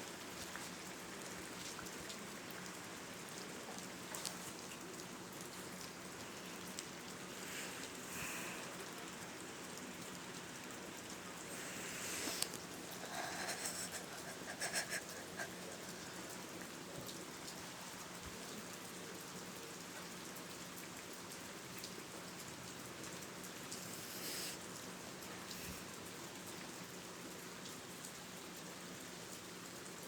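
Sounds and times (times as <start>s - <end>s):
steady hiss: 4.3s - 16.9s, 23.4s - 26.2s.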